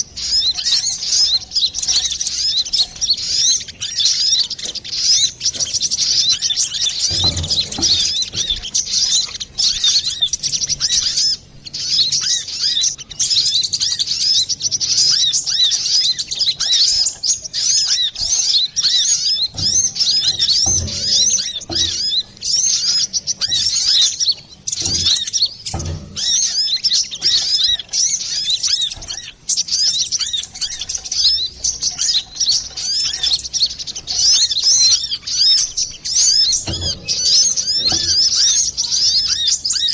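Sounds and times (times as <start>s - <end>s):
bird chirping and twittering: 0.0s - 39.9s
low thumps: 4.3s - 11.2s, 18.2s - 29.4s, 30.5s - 39.6s.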